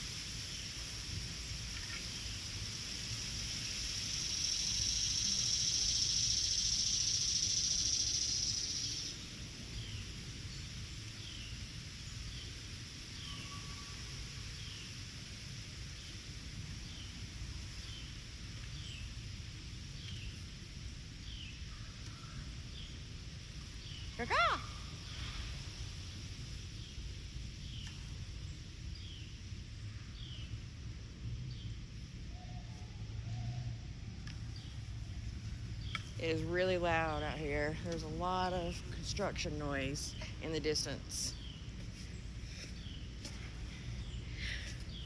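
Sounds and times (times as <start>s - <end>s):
insect-like buzz: 0.4s - 10.0s.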